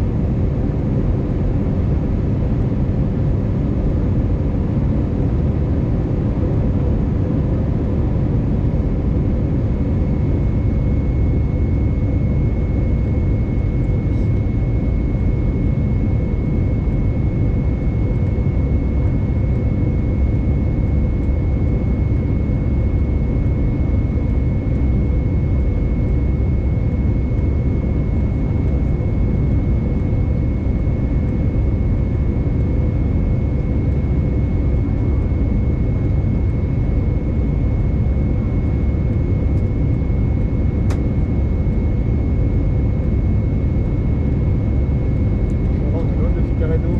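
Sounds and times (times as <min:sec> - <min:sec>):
thin constant whine: 0:09.9 - 0:46.9
cabin air and engine rush: 0:11.8 - 0:20.5, 0:21.2 - 0:46.9.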